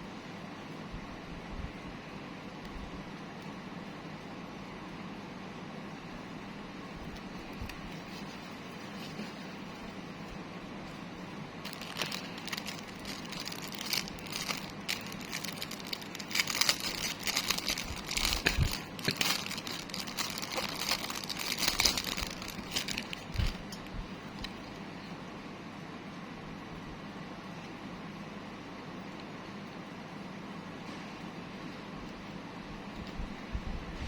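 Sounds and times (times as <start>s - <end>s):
plastic packaging crinkling: 11.6s - 24.5s.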